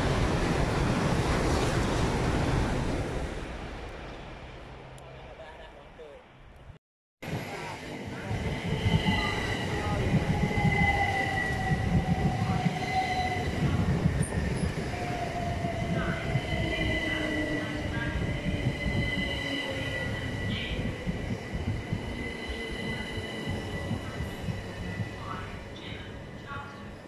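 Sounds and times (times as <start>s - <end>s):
train wheels rumbling on rail: 7.3s - 27.0s.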